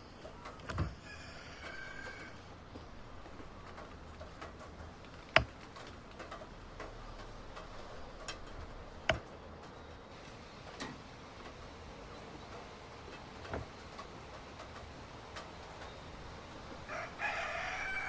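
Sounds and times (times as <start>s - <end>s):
hard objects knocking: 0.6s - 1.1s.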